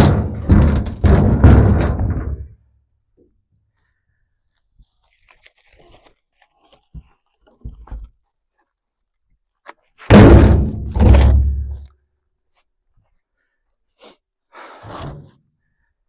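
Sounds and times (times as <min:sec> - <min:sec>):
logs dropping with thuds: 0:00.0 - 0:02.6, 0:10.0 - 0:11.9.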